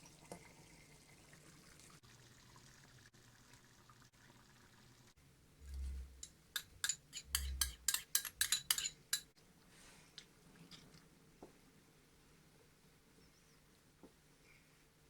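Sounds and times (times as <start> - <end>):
metal utensil clinking on dish: 5.6 - 9.3.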